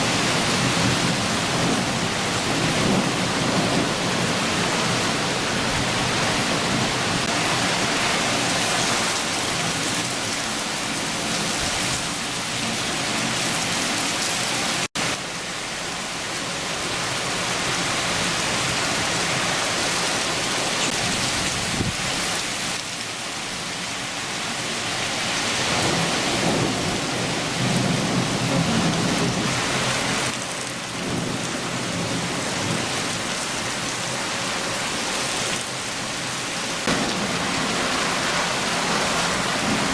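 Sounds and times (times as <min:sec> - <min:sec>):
thunder rumbling: 0:00.0 - 0:14.9, 0:25.7 - 0:33.8, 0:36.8 - 0:39.9
heavy rain downpour: 0:00.0 - 0:39.9.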